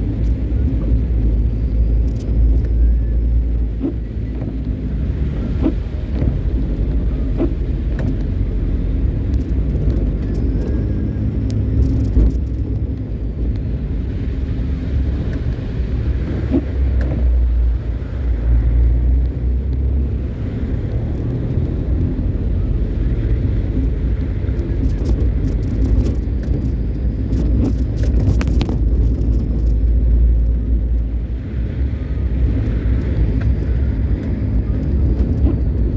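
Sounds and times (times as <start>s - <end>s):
car engine and road noise: 0.0s - 35.9s.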